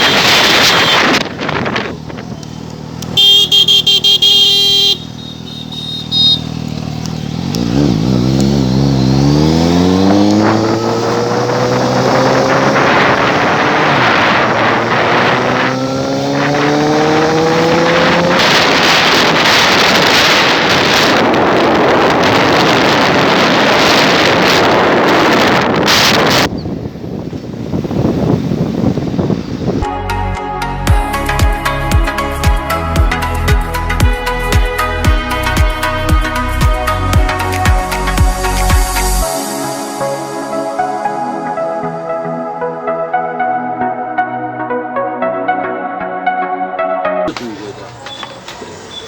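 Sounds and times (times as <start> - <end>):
wind noise: 0.0 - 4.9, 7.2 - 29.9
pulsing high beep: 3.2 - 6.4
motorcycle accelerating through gears: 5.0 - 26.7.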